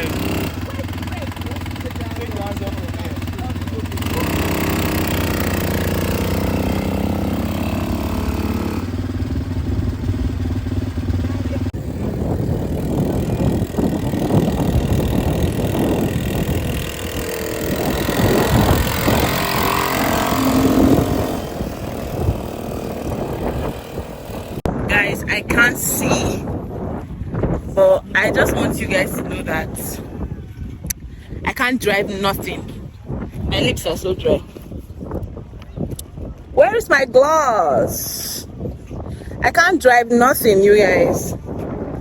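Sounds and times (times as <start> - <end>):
quad bike engine idling: 0.0 - 24.6
rough noisy engine: 0.0 - 25.1
rushing wind: 0.0 - 42.0.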